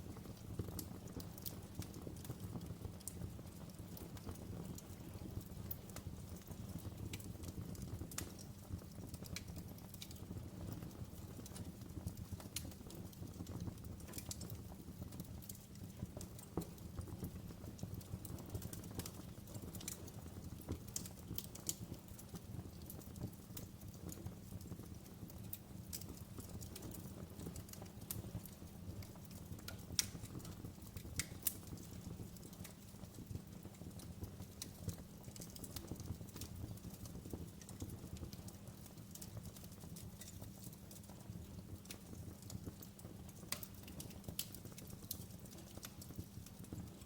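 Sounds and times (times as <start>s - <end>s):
wood fire crackling: 0.0s - 47.0s
sharp pops and snaps: 18.3s - 24.9s, 25.5s - 33.4s, 34.2s - 46.9s.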